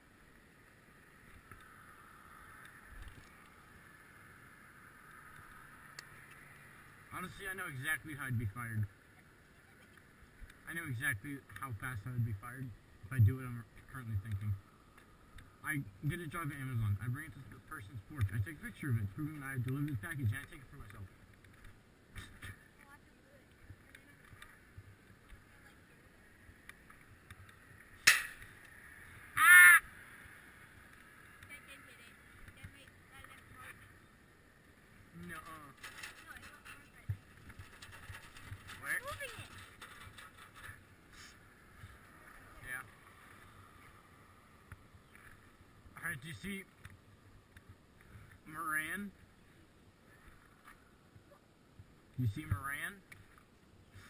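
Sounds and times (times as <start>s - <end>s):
faint steady hiss: 0.0s - 54.0s
sharp knock: 28.0s - 28.4s
crow cawing: 29.3s - 29.9s.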